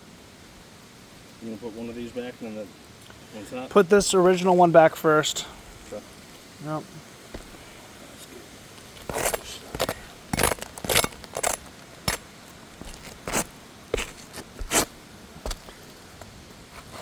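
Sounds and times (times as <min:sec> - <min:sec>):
roof shingles scraping and crackling: 0:07.2 - 0:17.0.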